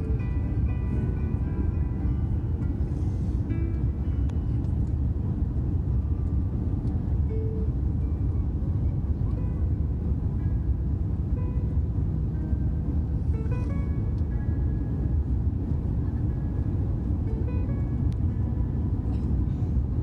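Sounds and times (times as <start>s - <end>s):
airplane cabin engine rumble: 0.0s - 20.0s.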